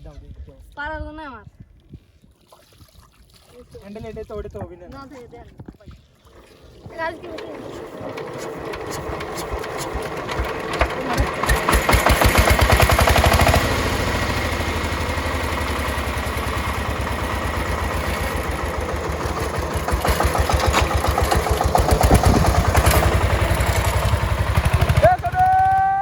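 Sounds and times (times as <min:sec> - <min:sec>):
diesel engine running: 0:06.9 - 0:26.0.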